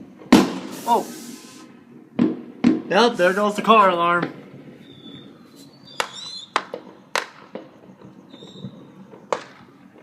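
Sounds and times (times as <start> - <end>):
fireworks bangs: 0.0 - 10.0
high warbling squeal: 8.2 - 9.0.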